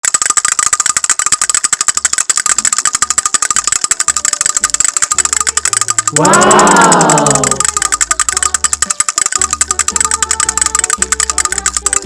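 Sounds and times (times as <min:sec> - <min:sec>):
rapid mechanical clicking rattle: 0:00.0 - 0:12.0.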